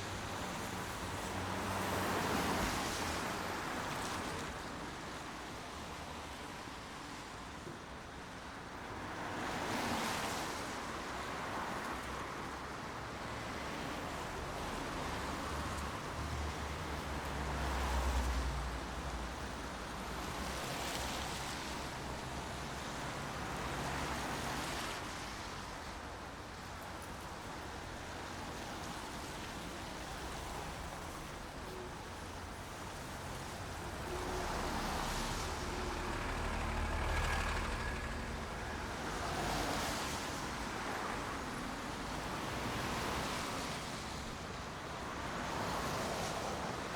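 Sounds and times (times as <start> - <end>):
rain hiss: 27.6 - 44.6.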